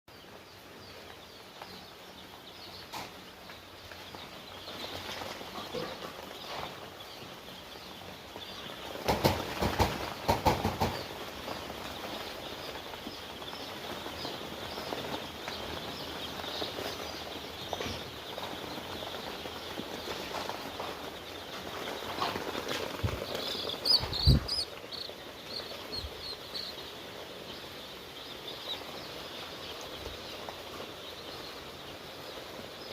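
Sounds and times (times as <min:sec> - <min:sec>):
chicks peeping: 0:00.1 - 0:32.9
loud rustling and knocking: 0:08.0 - 0:26.2.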